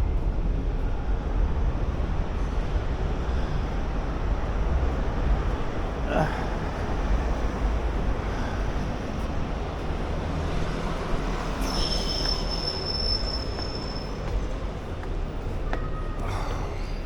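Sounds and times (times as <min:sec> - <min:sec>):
train rumbling: 0:00.0 - 0:17.0
train wheels squealing on rails: 0:08.2 - 0:17.0.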